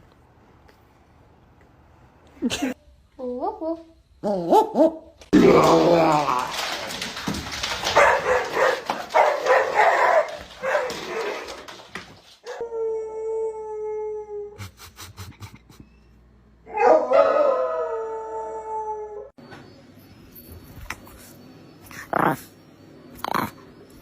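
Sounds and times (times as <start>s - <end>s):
dog barking and yelping: 7.8s - 11.5s, 16.7s - 17.6s
dog howling: 16.7s - 19.3s.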